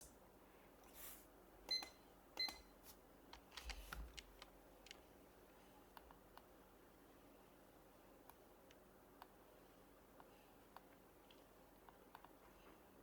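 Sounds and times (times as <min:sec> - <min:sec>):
kitchen timer beep: 0:01.7 - 0:02.7.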